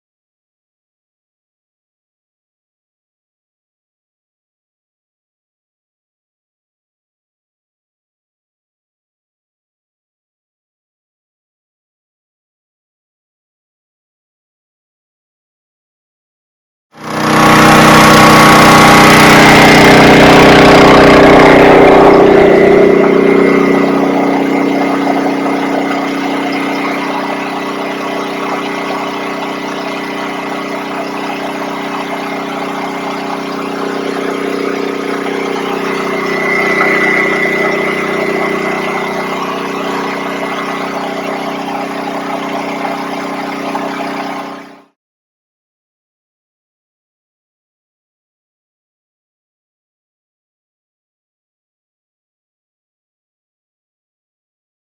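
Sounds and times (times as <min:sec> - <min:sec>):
engine running: 0:17.0 - 0:44.9.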